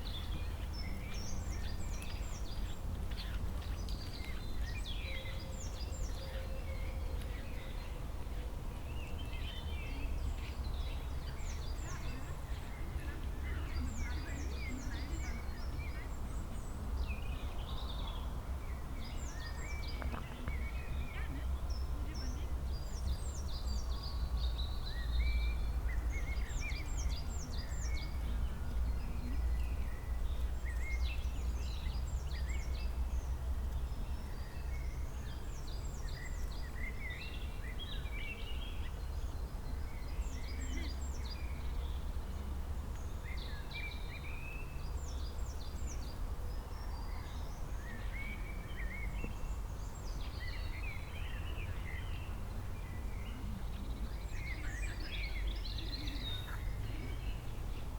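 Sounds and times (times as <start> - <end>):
songbirds singing: 0.0 - 57.9.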